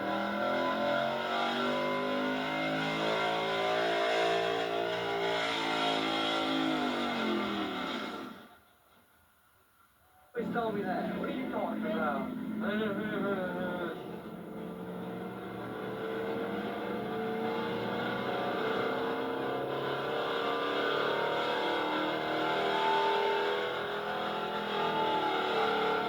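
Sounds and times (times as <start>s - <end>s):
truck engine running hard: 10.5s - 26.0s.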